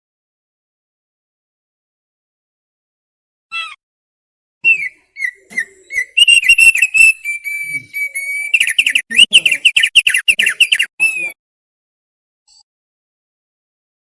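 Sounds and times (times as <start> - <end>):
bird singing clear whistles: 4.7 - 11.4.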